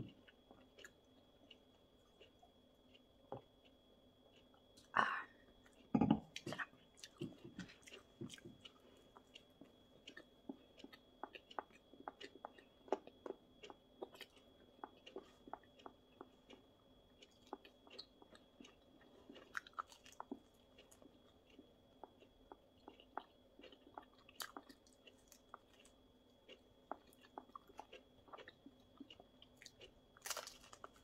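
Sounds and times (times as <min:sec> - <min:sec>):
chewing with wet mouth clicks: 0:00.1 - 0:04.9, 0:05.7 - 0:31.0.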